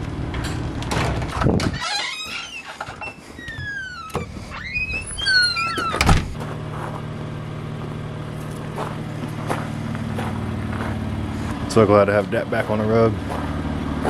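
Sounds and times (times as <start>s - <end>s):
high squeals sliding down: 1.7s - 6.2s
car engine idling: 3.3s - 14.0s.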